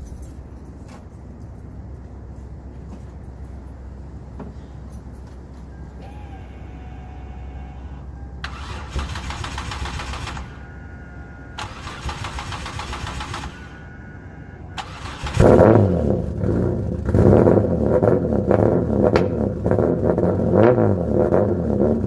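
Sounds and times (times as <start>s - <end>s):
engine starter cranking: 8.4s - 10.8s, 11.6s - 13.9s, 14.8s - 15.9s
car engine running loudly: 14.8s - 22.0s.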